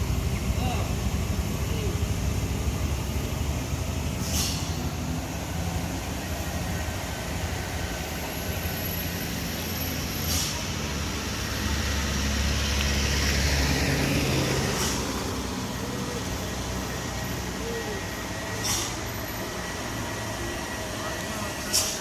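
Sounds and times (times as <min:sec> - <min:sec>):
truck diesel engine under load: 0:00.0 - 0:22.0
short hisses: 0:04.2 - 0:04.9, 0:10.2 - 0:10.7, 0:14.7 - 0:15.2, 0:18.6 - 0:19.0, 0:21.7 - 0:22.0.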